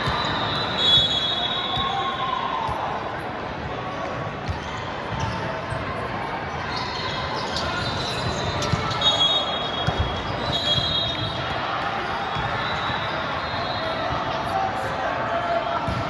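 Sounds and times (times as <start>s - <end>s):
crowd voices: 0.0s - 16.0s
sneakers squeaking on court: 6.7s - 11.5s.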